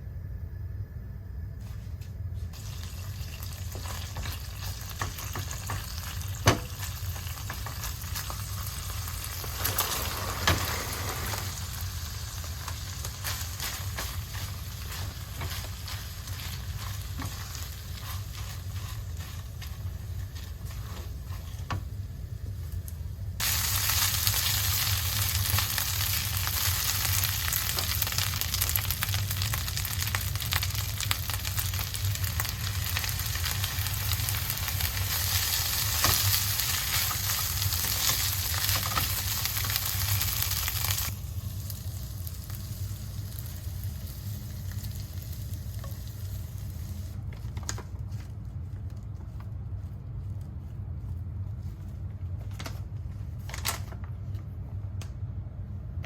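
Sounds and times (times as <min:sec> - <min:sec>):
steady low hum: 0:00.0 - 0:56.0
food sizzling in a frying pan: 0:02.5 - 0:21.9, 0:23.4 - 0:47.2.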